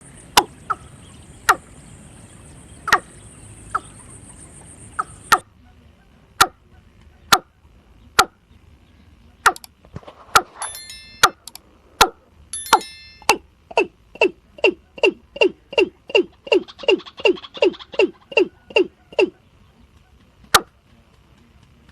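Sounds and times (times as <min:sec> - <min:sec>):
faint high steady tone: 0:10.6 - 0:11.6, 0:12.4 - 0:15.2.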